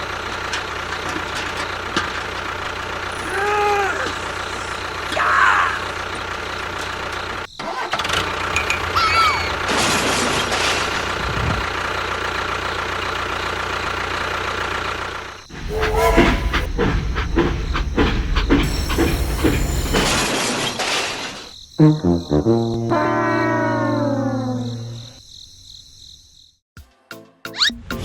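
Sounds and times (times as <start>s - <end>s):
vehicle engine running: 0.0s - 20.2s
short squeaky pitch glides: 15.5s - 16.9s.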